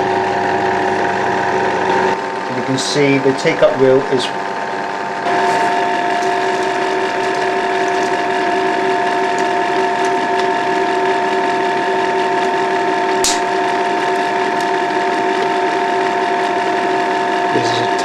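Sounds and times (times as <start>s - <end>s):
film projector running: 0.0s - 18.0s
sharp click: 13.2s - 13.5s.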